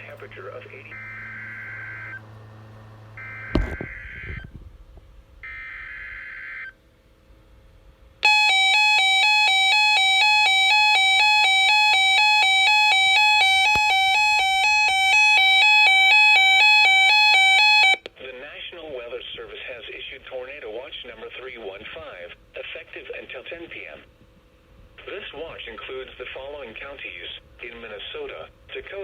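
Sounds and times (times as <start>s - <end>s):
buzzy digital data tone: 0.0s - 2.4s
warbling electronic alarm: 0.0s - 4.6s, 5.4s - 6.8s, 8.2s - 18.1s.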